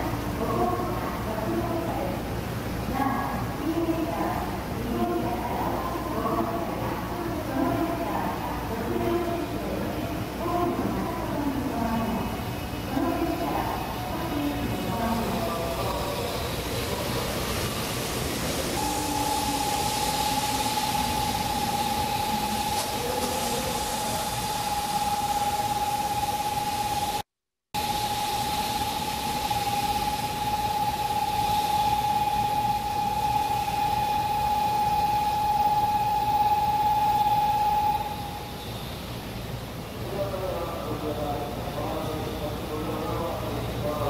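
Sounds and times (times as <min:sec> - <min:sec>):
train rushing rumble: 0:00.0 - 0:27.2
constant high tone: 0:03.2 - 0:27.2, 0:27.8 - 0:44.0
low whine falling in pitch: 0:10.7 - 0:27.2, 0:27.8 - 0:39.2.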